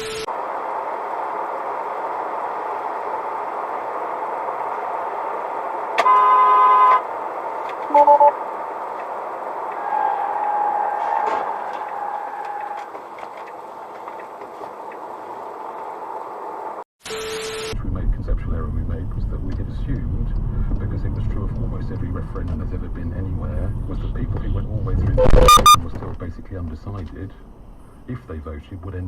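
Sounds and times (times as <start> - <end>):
road traffic noise: 0.0 - 29.0
short horn beeps: 6.0 - 7.0, 7.9 - 8.3, 25.2 - 25.8
car horn blaring: 6.0 - 7.1, 7.8 - 8.4, 25.2 - 25.8
faint held tone: 25.2 - 25.8.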